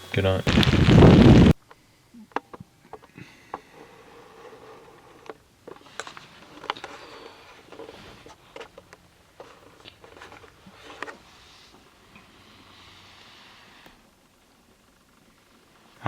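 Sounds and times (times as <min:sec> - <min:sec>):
rustling: 0:00.0 - 0:01.6.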